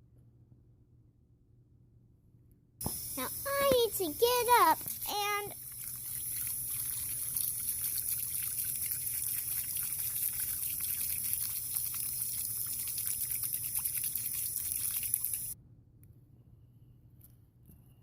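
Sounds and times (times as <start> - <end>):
small water splashes: 2.9 - 15.6
water running and trickling: 2.9 - 15.6.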